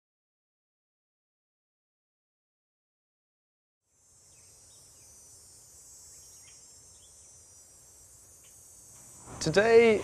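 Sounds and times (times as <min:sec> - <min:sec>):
high insect chirring: 0:03.8 - 0:10.0.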